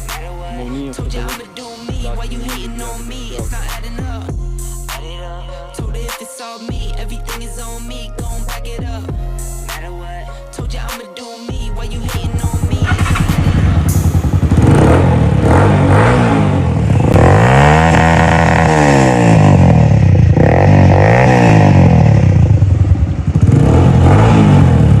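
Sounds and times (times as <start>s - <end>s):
small motorcycle engine revving: 12.3s - 25.0s.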